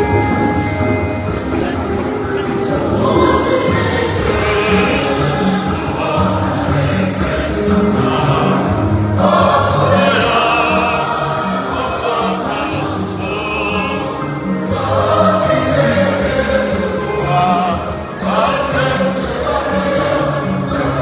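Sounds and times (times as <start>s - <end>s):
choir singing a hymn: 0.0s - 21.0s.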